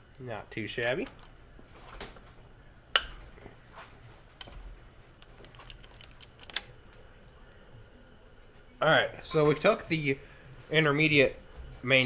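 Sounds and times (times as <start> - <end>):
metal clicks of tools and parts: 1.0 - 1.4, 4.4 - 6.8.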